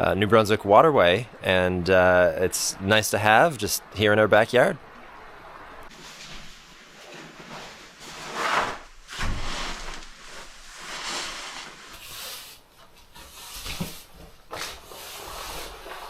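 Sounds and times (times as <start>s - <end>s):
swishing and rubbing noises: 5.9s - 16.0s.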